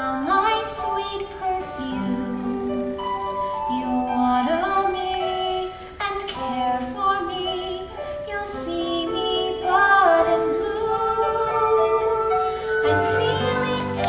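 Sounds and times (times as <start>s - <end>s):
instrumental accompaniment: 0.1s - 14.0s
woman singing long notes: 3.6s - 14.0s.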